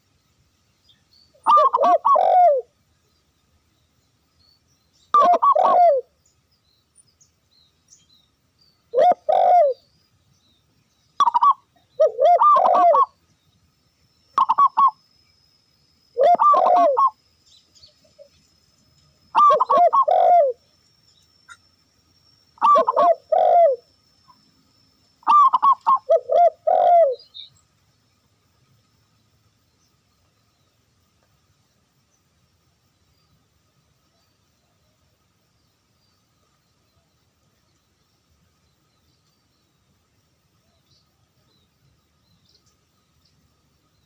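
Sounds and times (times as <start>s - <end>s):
dove cooing: 1.4s - 2.7s, 5.1s - 6.1s, 8.9s - 9.8s, 11.2s - 13.2s, 14.4s - 15.0s, 16.2s - 17.2s, 19.3s - 20.6s, 22.6s - 23.9s, 25.2s - 27.4s.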